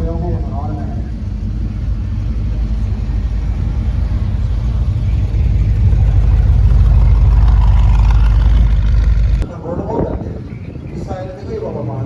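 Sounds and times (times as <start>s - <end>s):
car driving past: 0.0s - 9.5s.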